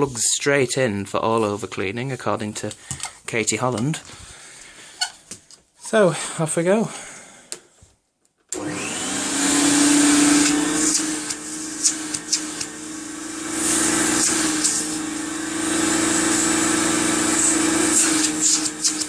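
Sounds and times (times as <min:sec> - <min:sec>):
vacuum cleaner motor whine: 0:08.6 - 0:19.0.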